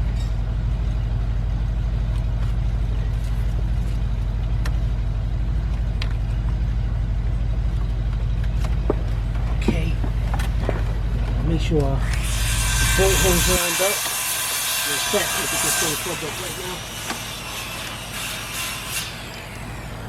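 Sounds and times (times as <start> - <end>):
vehicle engine idling: 0.0 - 13.7, 19.2 - 20.0.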